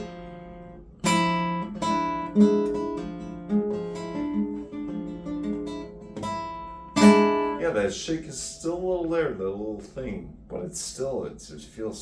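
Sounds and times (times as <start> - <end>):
acoustic guitar strummed chord: 0.0 - 7.9
acoustic guitar picked notes: 0.0 - 10.6.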